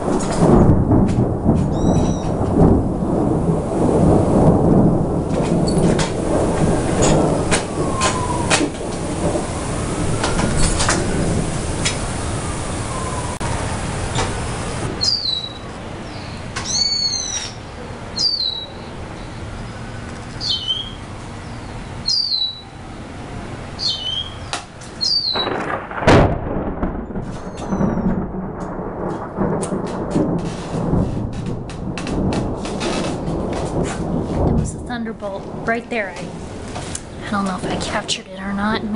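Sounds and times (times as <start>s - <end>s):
sharp thunderclap: 0.0s - 22.6s, 23.8s - 38.9s
low thunder rumbling: 0.0s - 38.9s
bird giving high falling call: 1.7s - 2.4s, 7.8s - 8.6s, 12.6s - 13.6s, 15.0s - 17.6s, 18.2s - 19.4s, 20.4s - 22.8s, 23.8s - 25.6s.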